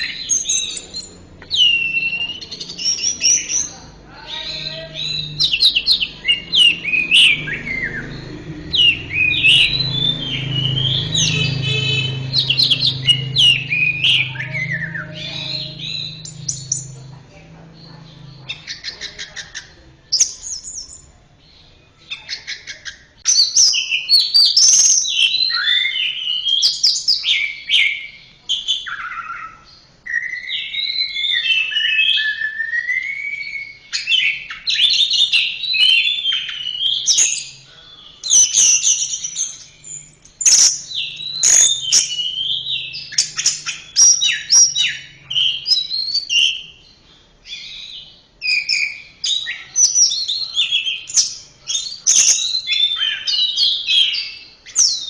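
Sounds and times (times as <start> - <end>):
thrush singing: 0.0 - 19.2.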